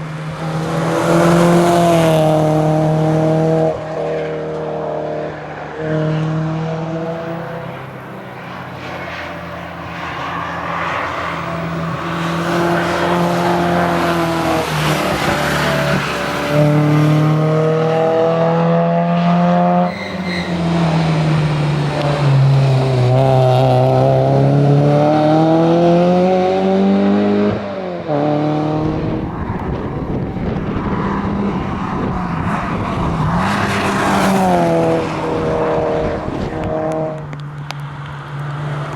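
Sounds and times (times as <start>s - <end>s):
car engine revving hard: 11.1s - 20.0s, 20.6s - 37.4s.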